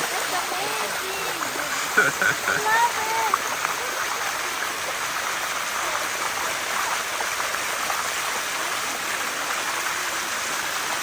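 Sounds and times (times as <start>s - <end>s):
waterfall rushing over rock: 0.0s - 11.0s.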